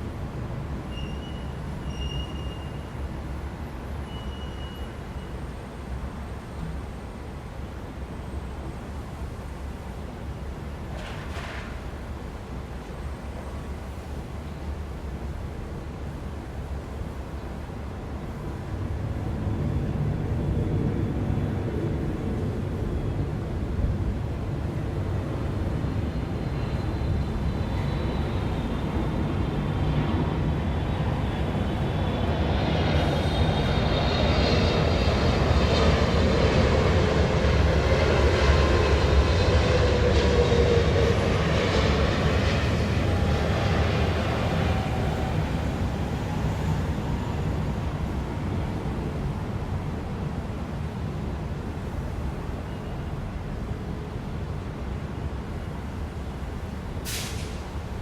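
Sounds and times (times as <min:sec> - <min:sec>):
city traffic rumble: 0:00.0 - 0:58.0
airplane passing overhead: 0:18.5 - 0:52.7.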